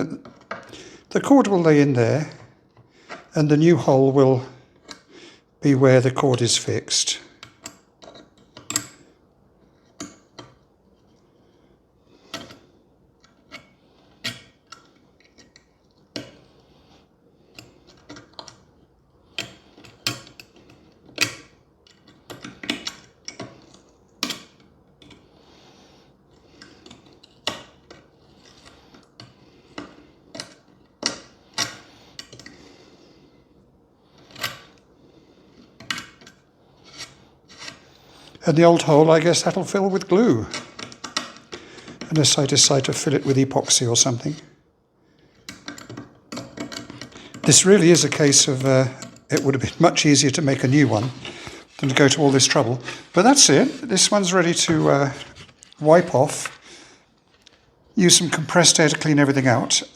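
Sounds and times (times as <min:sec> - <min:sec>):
hand tools clicking and tapping: 0:07.4 - 0:09.0, 0:19.3 - 0:25.2, 0:26.6 - 0:32.6, 0:40.5 - 0:42.1, 0:45.4 - 0:49.5
tool scraping wood: 0:36.7 - 0:44.4, 0:46.5 - 0:57.0.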